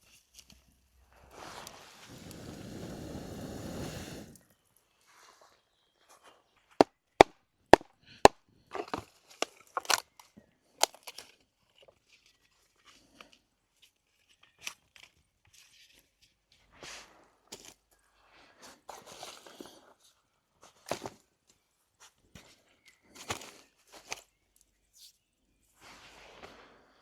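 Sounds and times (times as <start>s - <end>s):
rustling scraping noise: 1.1s - 4.4s, 25.8s - 27.0s.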